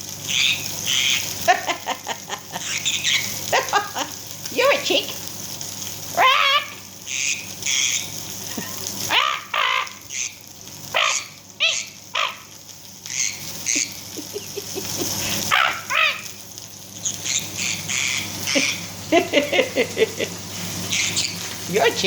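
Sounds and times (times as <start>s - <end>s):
parrot chattering and squawking: 0.3s - 1.8s, 2.6s - 4.0s, 6.1s - 16.4s, 17.0s - 18.9s, 20.8s - 21.5s.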